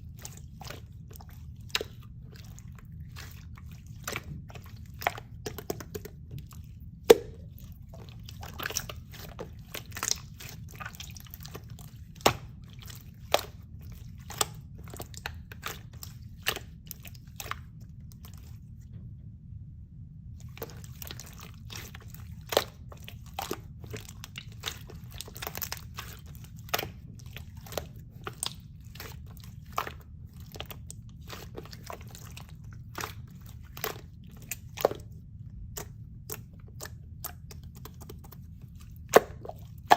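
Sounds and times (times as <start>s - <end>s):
low hum: 17.7s - 22.2s.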